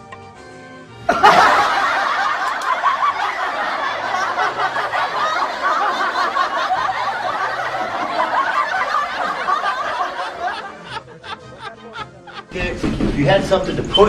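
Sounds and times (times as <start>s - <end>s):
crowd laughing: 1.1s - 14.0s.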